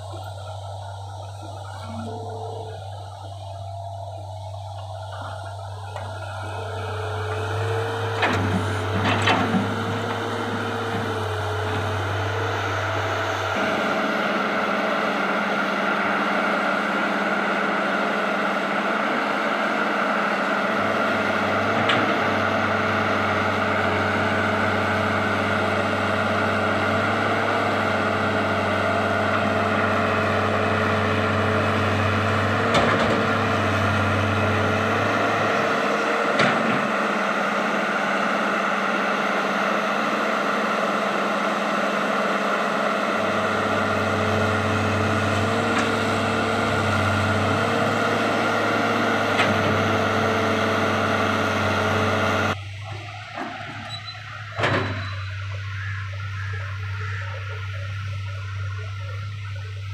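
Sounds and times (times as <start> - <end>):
deep low hum: 0.0 - 14.2, 52.5 - 59.9
heavy machine engine running: 0.0 - 59.9.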